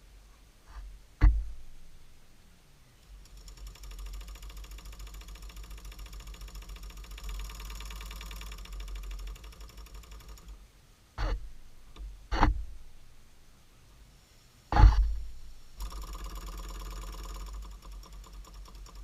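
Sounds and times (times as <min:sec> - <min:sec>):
model steam engine chuffing: 0:03.0 - 0:10.6, 0:14.8 - 0:19.0.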